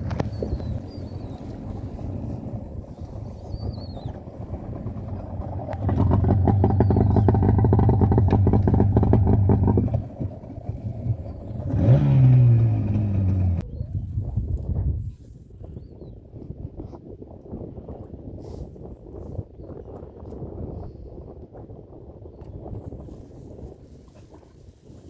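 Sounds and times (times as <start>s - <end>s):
small boat motor running: 0.0s - 13.6s.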